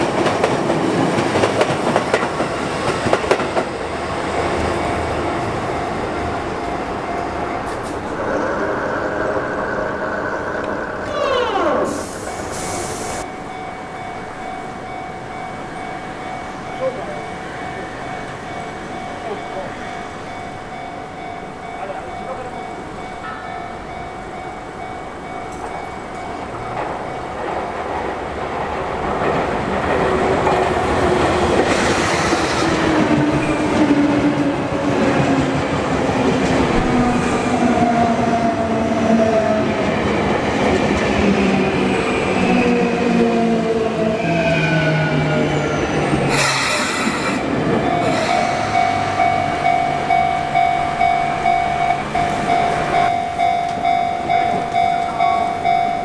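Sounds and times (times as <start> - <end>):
wheel noise on rails: 0.0 - 23.0, 23.7 - 44.2, 44.9 - 56.0
crossing warning bell ringing: 1.0 - 56.0
train motor whine: 7.4 - 13.2, 46.0 - 50.7.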